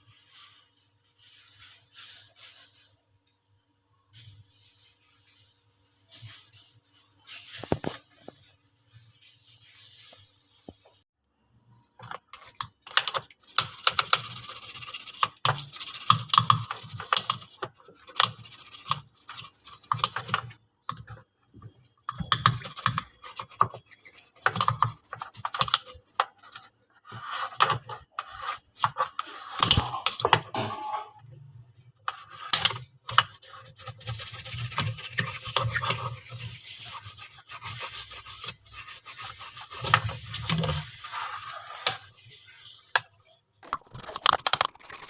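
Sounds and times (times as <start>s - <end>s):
brush scrubbing: 12.0s - 30.3s, 31.6s - 45.0s.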